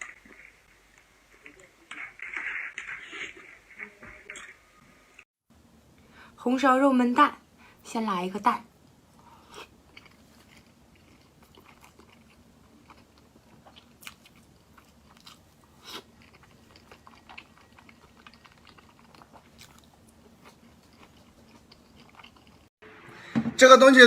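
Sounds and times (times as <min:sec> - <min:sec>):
person biting and chewing: 0:09.2 - 0:22.7.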